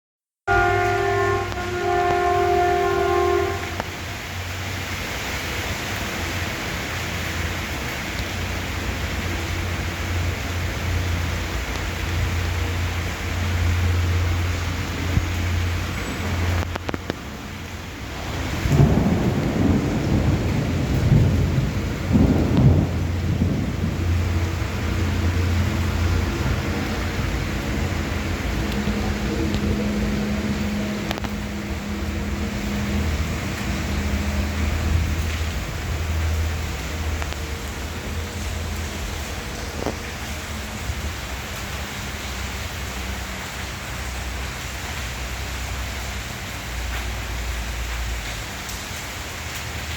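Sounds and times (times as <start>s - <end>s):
heavy rain falling: 0.5s - 49.9s
low rumble: 18.0s - 41.2s.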